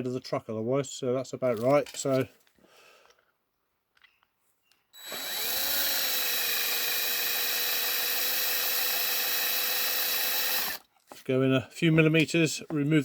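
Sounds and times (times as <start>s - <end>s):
small electric drill whining: 5.0s - 10.9s.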